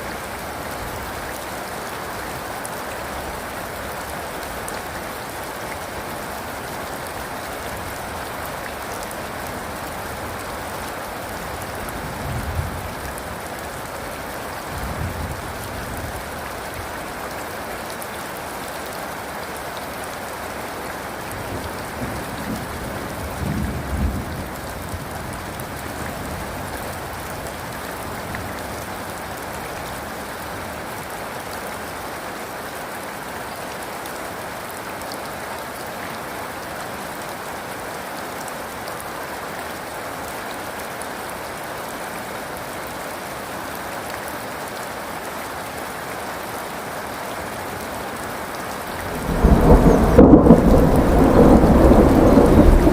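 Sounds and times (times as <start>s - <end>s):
heavy rain falling: 0.0s - 52.9s
thunder rumbling: 49.0s - 52.9s.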